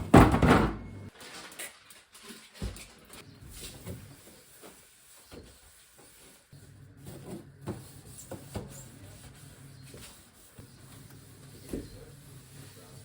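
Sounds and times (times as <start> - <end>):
containers and doors clunking: 0.0 - 1.1.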